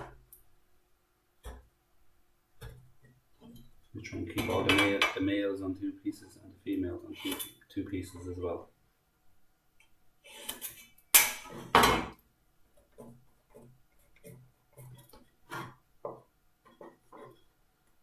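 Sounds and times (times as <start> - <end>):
light taps and scratches: 12.8 - 17.5.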